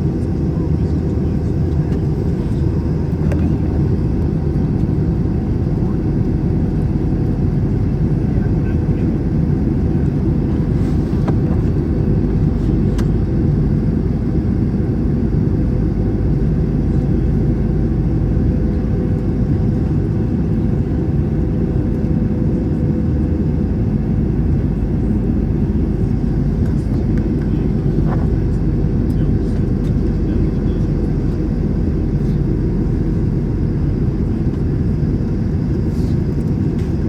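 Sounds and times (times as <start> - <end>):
airplane cabin rumble: 0.0 - 37.0.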